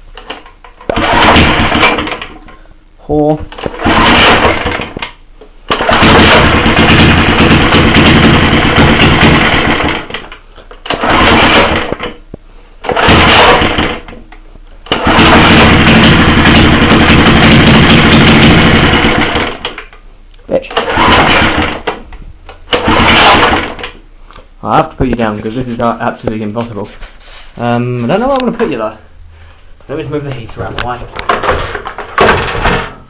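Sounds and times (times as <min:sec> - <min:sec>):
two-stroke engine firing: 0:00.8 - 0:02.4, 0:03.6 - 0:05.0, 0:05.7 - 0:12.2, 0:12.8 - 0:14.1, 0:14.9 - 0:19.8, 0:20.7 - 0:22.0, 0:22.7 - 0:24.0, 0:32.2 - 0:33.0.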